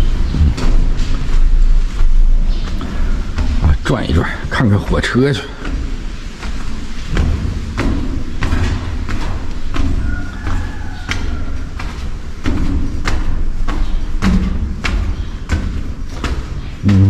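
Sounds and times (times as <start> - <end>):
wind buffeting microphone: 0.0 - 3.9.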